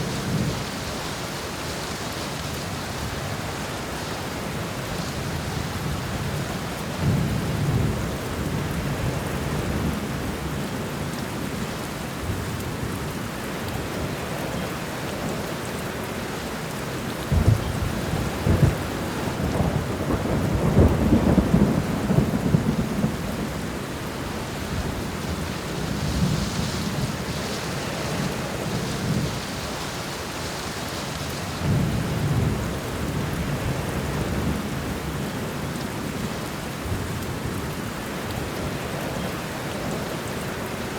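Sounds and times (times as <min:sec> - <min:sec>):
heavy rain: 0:00.0 - 0:40.9
sharp thunder cracks: 0:17.3 - 0:18.8
rolling thunder: 0:17.3 - 0:23.9.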